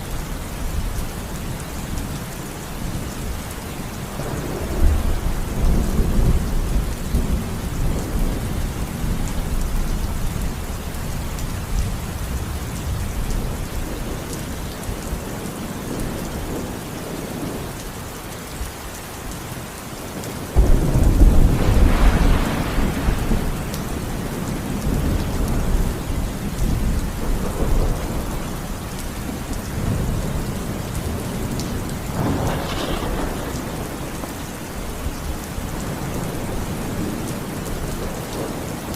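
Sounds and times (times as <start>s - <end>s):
steady rain falling: 0.0s - 38.9s
rolling thunder: 4.2s - 10.7s, 20.5s - 38.9s.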